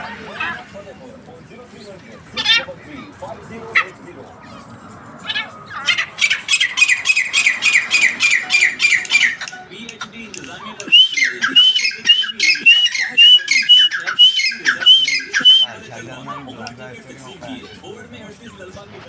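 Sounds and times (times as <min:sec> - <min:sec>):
francolin calling: 0:05.3 - 0:09.5, 0:10.9 - 0:15.7.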